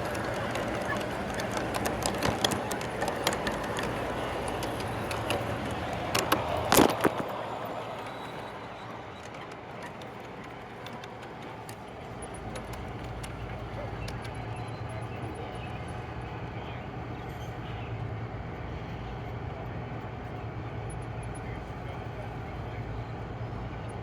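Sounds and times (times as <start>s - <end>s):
wheel clicks on rail joints: 0.0s - 16.1s
model train rolling rumble: 0.0s - 24.0s.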